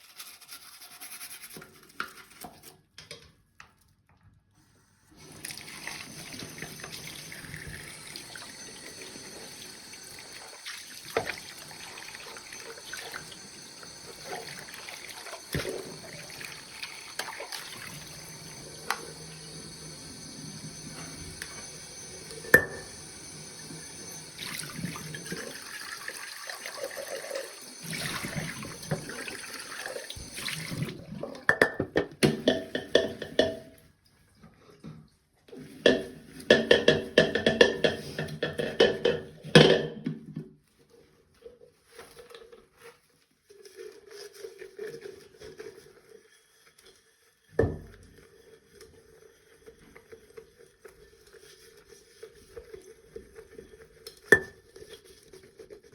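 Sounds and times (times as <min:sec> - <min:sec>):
tap water running into sink: 0:05.2 - 0:33.8, 0:35.5 - 0:40.2.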